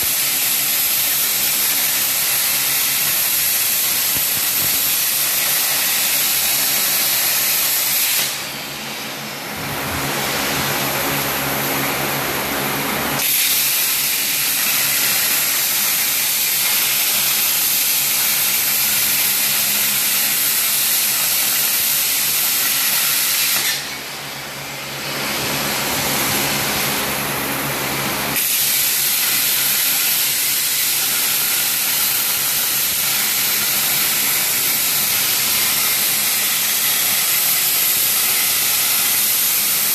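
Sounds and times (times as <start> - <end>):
machine running with loud hiss: 0.0 - 39.9
low machine hum: 8.4 - 13.2.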